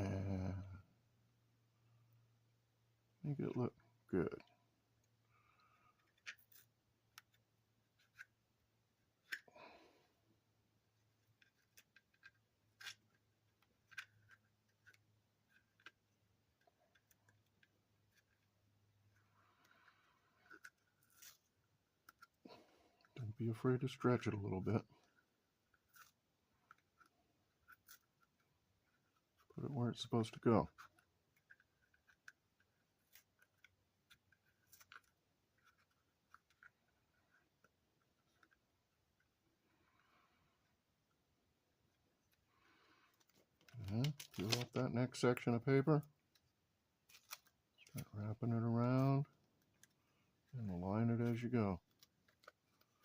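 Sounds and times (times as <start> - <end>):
faint ticks and rustles of tape: 10.9 - 53.0.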